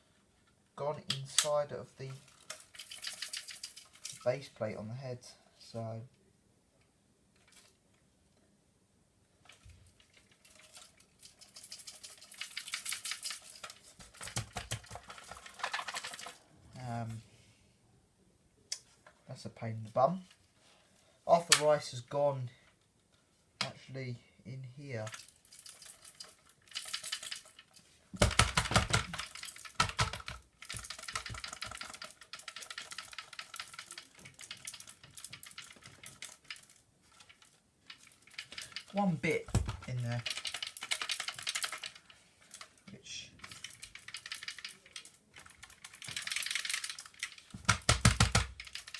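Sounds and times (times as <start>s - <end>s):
rice rattling inside plastic: 9.5s - 16.5s, 25.0s - 48.9s.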